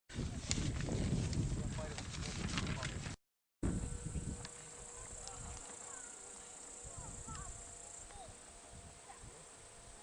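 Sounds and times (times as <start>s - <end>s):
singing bowls ringing: 3.7s - 10.0s.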